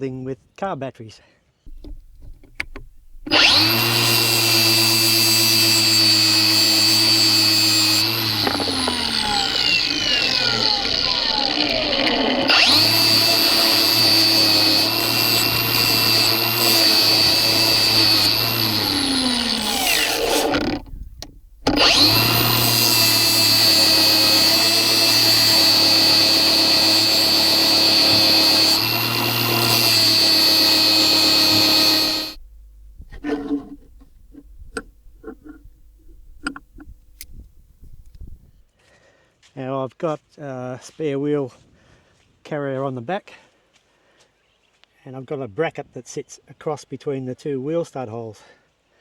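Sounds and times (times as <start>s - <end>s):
electric power tool whining: 1.7s - 38.6s.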